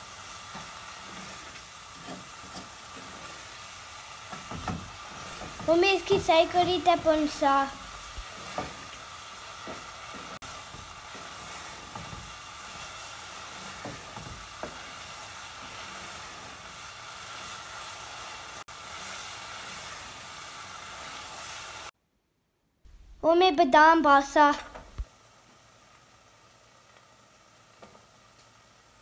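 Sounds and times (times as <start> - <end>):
food sizzling in a pan: 0.0 - 22.0, 23.2 - 29.0
wooden spoon scraping: 0.4 - 3.7, 4.3 - 7.2, 7.9 - 16.6.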